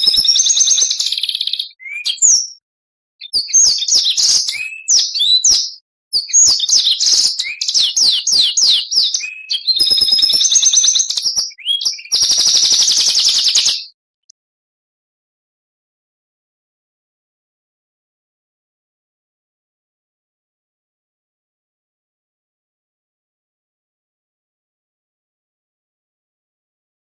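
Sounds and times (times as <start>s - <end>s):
songbird singing trills and whistles: 0.0s - 2.6s, 3.2s - 14.0s.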